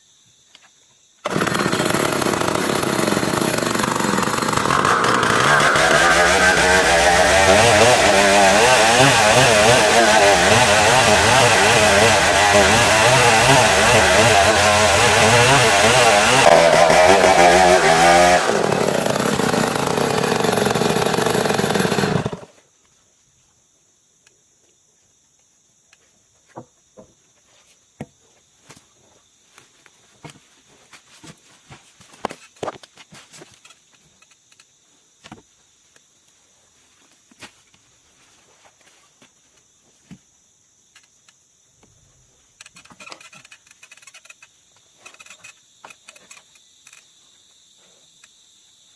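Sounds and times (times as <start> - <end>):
insects humming: 0.0 - 48.9
chainsaw sawing wood: 1.2 - 22.6.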